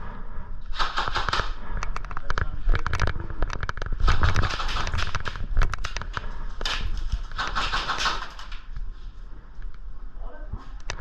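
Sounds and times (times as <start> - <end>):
airsoft guns firing: 0.7 - 2.0, 3.9 - 8.7.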